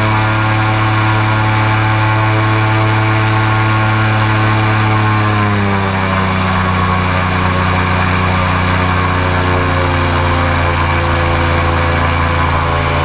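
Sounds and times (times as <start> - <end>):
airboat engine and propeller: 0.0 - 13.0.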